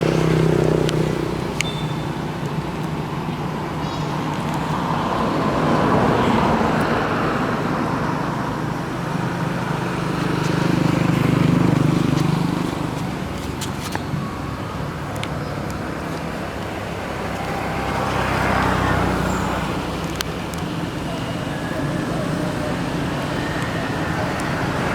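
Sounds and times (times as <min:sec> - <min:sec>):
vehicles passing: 0:00.0 - 0:24.9.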